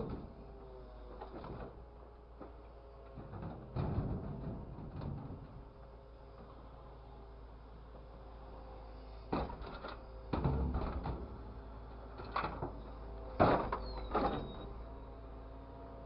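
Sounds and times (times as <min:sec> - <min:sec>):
knocks and clatters: 0:02.4 - 0:05.6.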